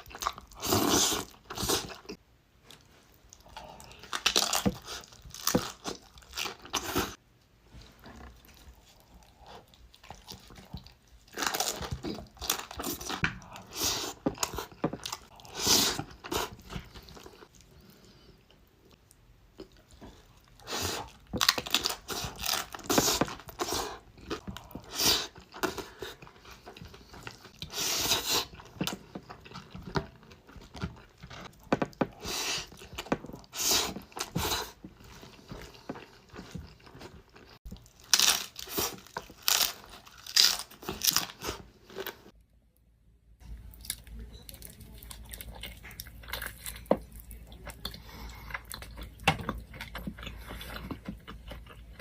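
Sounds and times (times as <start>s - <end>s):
chewing food: 0.0s - 7.2s, 7.9s - 42.4s, 43.4s - 52.0s
crunching chips: 36.8s - 42.2s.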